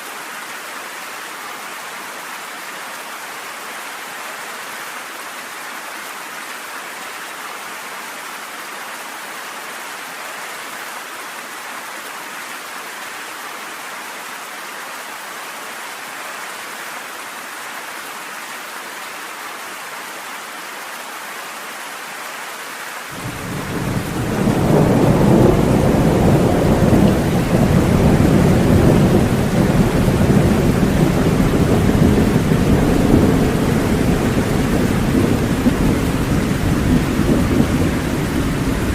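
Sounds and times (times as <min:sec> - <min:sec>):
steady rain: 0:00.0 - 0:38.9
thunder rumbling: 0:23.2 - 0:38.9.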